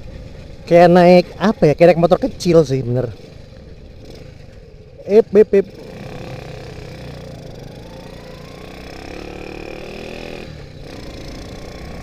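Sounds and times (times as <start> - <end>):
motorcycle engine accelerating: 3.0 - 12.0.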